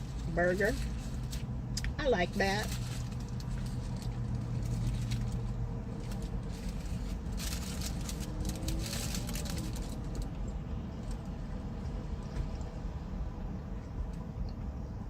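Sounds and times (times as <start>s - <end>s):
low hum inside a car: 0.0s - 15.0s
crackly rustling: 2.6s - 12.7s.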